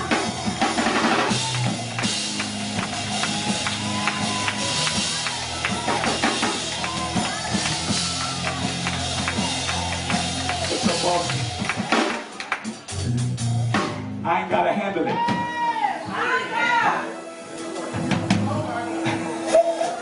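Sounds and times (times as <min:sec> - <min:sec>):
held low chords: 0:00.0 - 0:12.0, 0:12.8 - 0:14.5
drum kit kick and snare: 0:00.0 - 0:14.2
person preaching: 0:10.6 - 0:11.5, 0:14.3 - 0:17.1.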